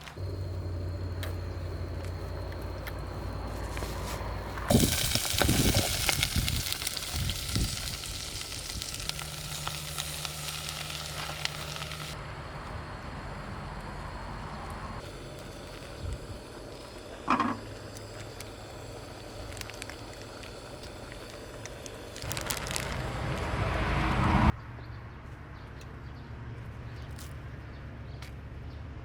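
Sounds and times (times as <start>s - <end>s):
steady low hum: 0.0s - 23.7s
food sizzling in a hot pan: 4.7s - 12.2s.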